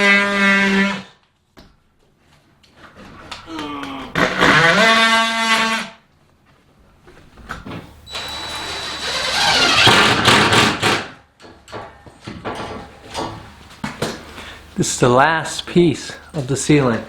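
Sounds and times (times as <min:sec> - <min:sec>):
power drill whining: 0:08.0 - 0:10.6.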